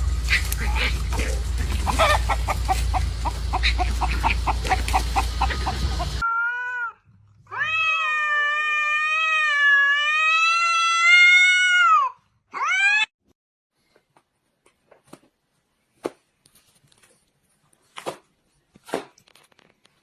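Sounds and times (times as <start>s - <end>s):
cat yowling and meowing: 6.2s - 13.1s.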